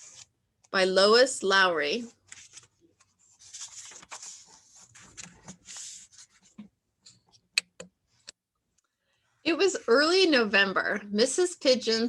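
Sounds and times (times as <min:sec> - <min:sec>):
book pages rustling and turning: 0:00.0 - 0:00.4, 0:02.0 - 0:07.4.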